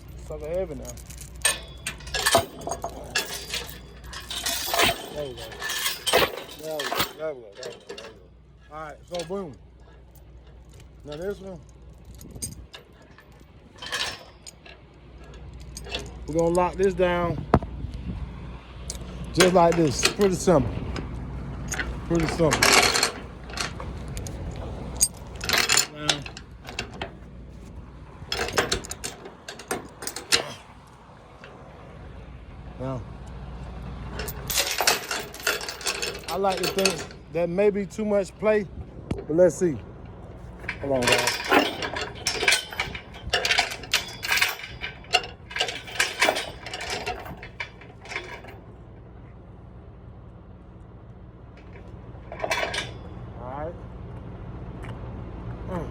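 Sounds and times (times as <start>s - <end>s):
chain clinking against metal: 0.0s - 17.4s, 18.9s - 31.6s, 34.0s - 38.6s, 39.2s - 48.7s, 51.6s - 53.2s.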